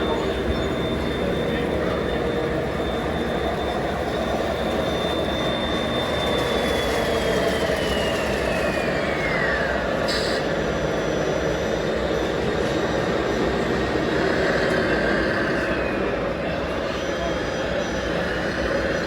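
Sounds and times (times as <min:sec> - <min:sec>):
model truck motors whining: 0:00.0 - 0:14.0.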